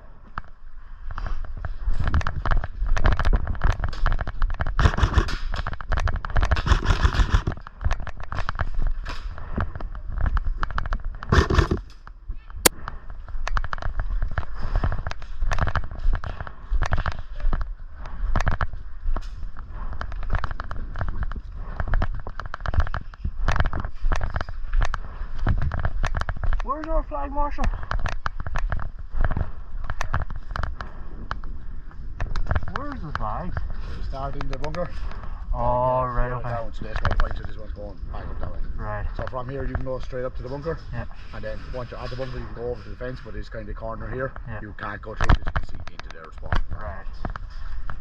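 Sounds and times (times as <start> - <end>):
airsoft guns firing: 4.8 - 5.5, 11.3 - 11.8.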